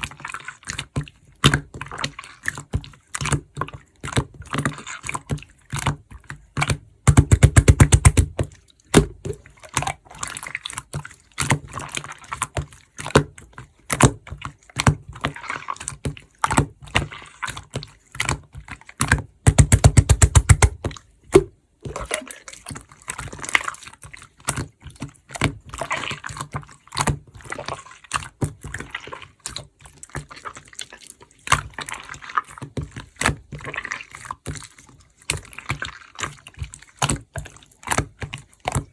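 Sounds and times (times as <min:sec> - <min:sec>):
rapid slime popping: 0:00.5 - 0:38.9
slime squished wet clicks: 0:19.0 - 0:22.5.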